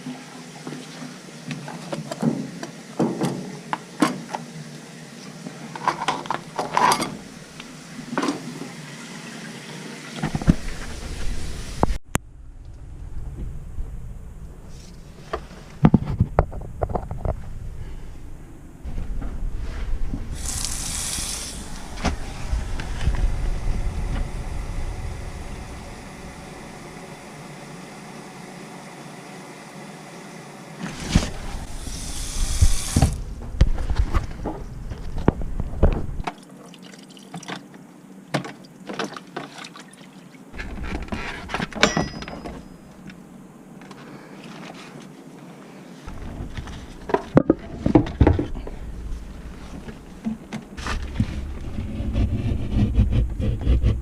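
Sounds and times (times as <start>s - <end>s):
water running from a faucet: 20.3s - 21.9s, 31.7s - 33.2s.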